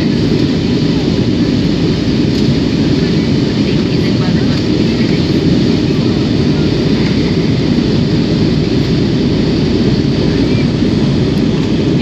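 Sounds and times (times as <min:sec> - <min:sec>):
aircraft engines and airflow: 0:00.0 - 0:12.0.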